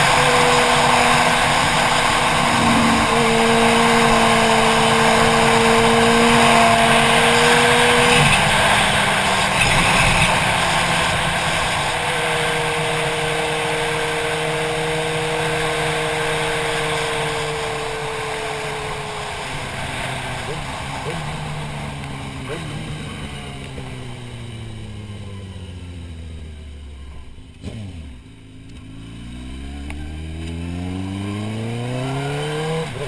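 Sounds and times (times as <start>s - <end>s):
rushing wind noise: 0.0s - 13.7s
motorcycle engine running: 0.0s - 32.1s.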